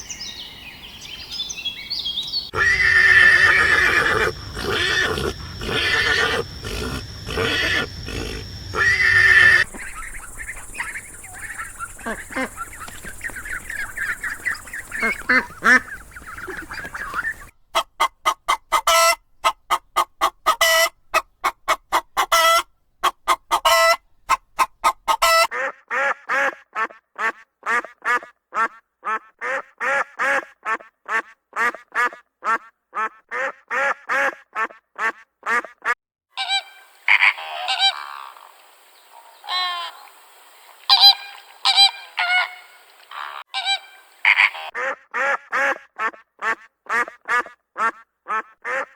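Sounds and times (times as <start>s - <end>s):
animal honking calls: 2.5s - 25.5s.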